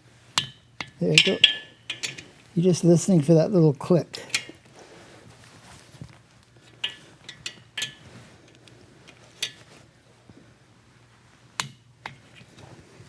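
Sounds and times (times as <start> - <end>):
torque wrench clicking: 0.4 - 2.3
socket clinking on metal nuts: 0.4 - 2.5, 4.2 - 4.6, 6.7 - 9.7.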